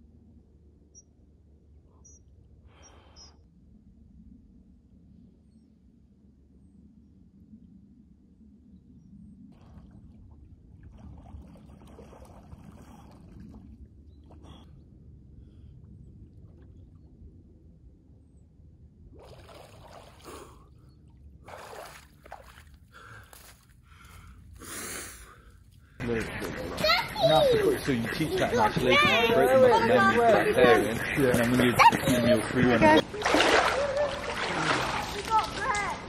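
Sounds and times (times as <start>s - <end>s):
low steady rumble: 0.0s - 26.4s
water sloshing and splashing: 9.5s - 14.7s, 19.1s - 23.8s, 31.4s - 36.0s.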